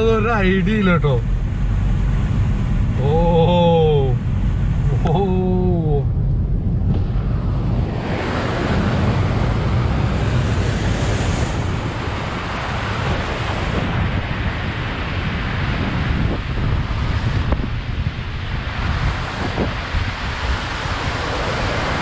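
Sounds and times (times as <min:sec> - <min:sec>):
car splashing through floodwater: 0:00.0 - 0:22.0
low rumble: 0:00.0 - 0:22.0
man exclaiming: 0:03.0 - 0:04.2, 0:04.9 - 0:06.1.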